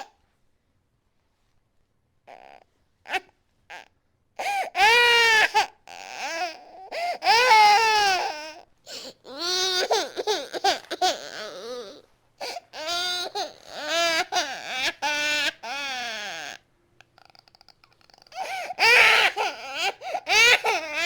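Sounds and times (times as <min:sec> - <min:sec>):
infant crying: 0:02.3 - 0:16.6, 0:17.2 - 0:21.0
gasping breaths: 0:17.2 - 0:18.8.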